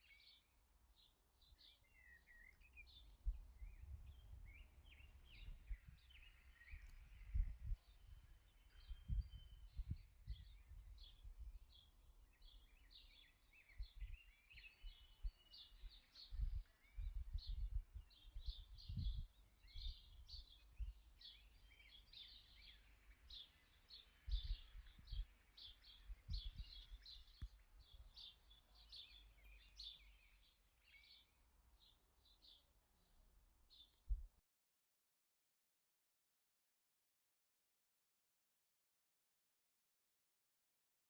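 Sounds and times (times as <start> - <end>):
birds chirping: 1.0 - 32.6.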